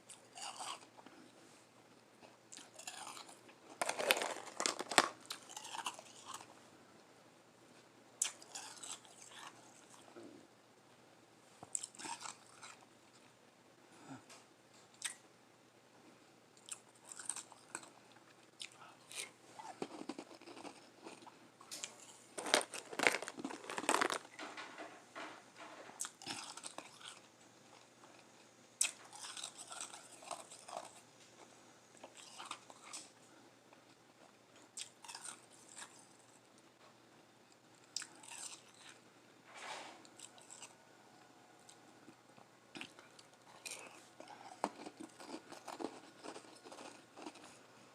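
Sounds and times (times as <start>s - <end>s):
chewing crunchy ice: 0.1s - 1.0s, 2.2s - 6.5s, 8.2s - 10.0s, 11.7s - 12.9s, 16.6s - 24.4s, 26.0s - 31.0s, 32.0s - 33.1s, 34.8s - 36.2s, 37.9s - 39.0s, 40.1s - 40.8s, 42.7s - 47.6s.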